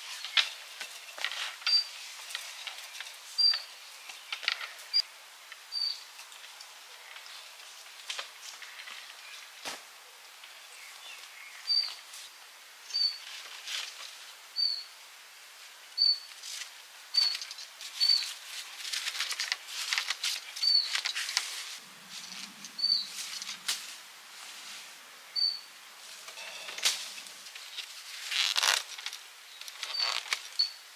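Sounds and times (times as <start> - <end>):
sharp rustling crackles: 0.0 - 5.1, 13.0 - 14.4, 16.3 - 30.9
faint outdoor hiss: 0.0 - 30.9
bird chirping: 1.6 - 2.0, 2.8 - 5.0, 5.7 - 6.1, 10.6 - 12.0, 12.9 - 13.2, 14.6 - 14.9, 16.0 - 16.3, 17.1 - 18.4, 20.6 - 21.2, 22.7 - 23.2, 25.3 - 25.7, 29.4 - 30.8.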